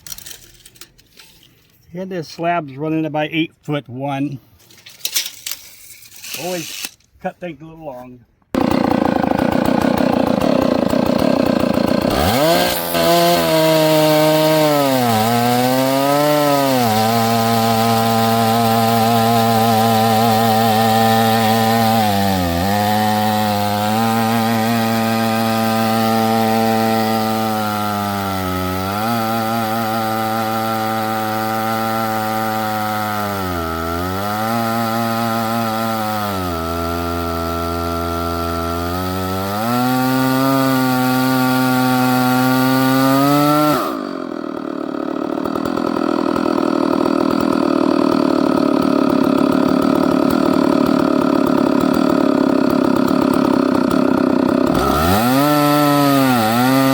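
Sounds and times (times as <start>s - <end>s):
chainsaw cutting log: 0.0s - 1.7s, 4.4s - 56.9s.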